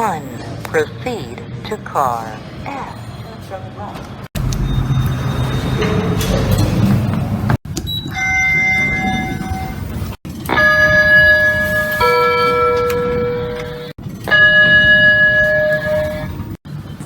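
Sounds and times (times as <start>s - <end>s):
elevator arrival chimes: 4.4s - 7.1s, 7.8s - 16.6s.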